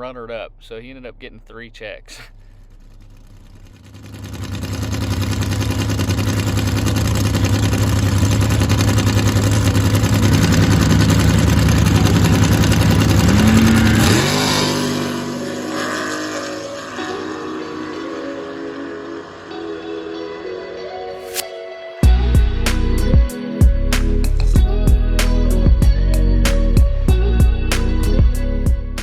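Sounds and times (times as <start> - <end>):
race car engine at full throttle: 2.1 - 19.8
music: 16.4 - 29.0.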